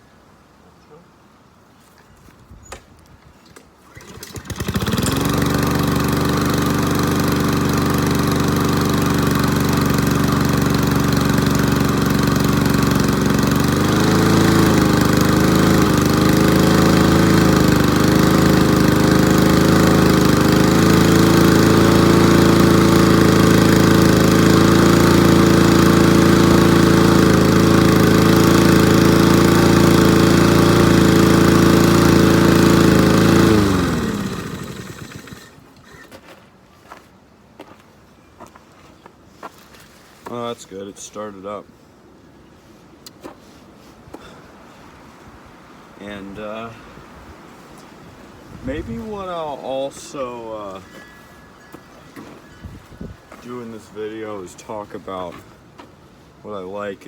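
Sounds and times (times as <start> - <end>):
lawnmower engine starting and running: 3.8 - 36.2, 48.7 - 55.4.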